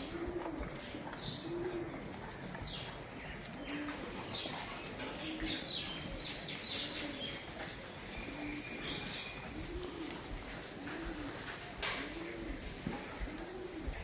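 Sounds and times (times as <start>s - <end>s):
small songbirds chirping: 0.0s - 9.6s
doves cooing: 0.0s - 14.0s.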